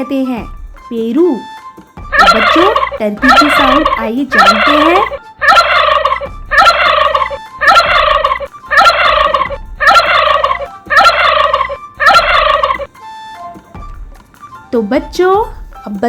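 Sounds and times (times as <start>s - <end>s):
turkey gobbling: 2.1s - 12.9s.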